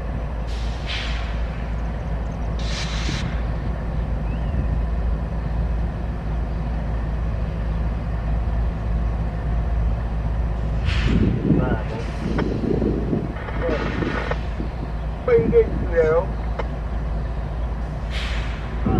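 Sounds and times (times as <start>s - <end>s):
freight train rumbling past: 0.0s - 18.9s
brief hiss: 2.6s - 3.4s.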